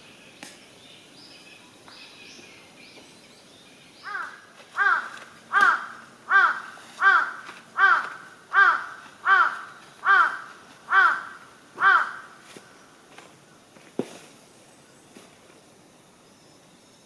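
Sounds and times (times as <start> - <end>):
crow cawing: 4.0 - 12.4.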